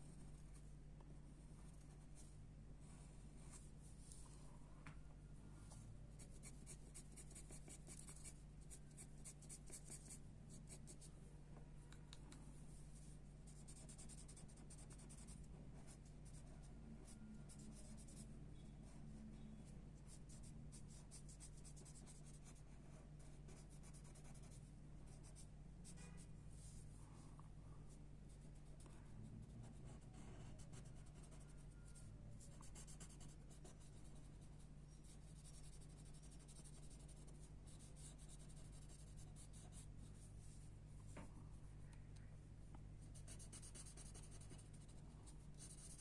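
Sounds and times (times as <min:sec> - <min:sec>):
low steady hum: 0:00.0 - 0:46.0
pencil scratching on paper: 0:06.2 - 0:11.1, 0:12.9 - 0:18.2, 0:20.1 - 0:26.8, 0:28.3 - 0:40.6, 0:43.1 - 0:46.0.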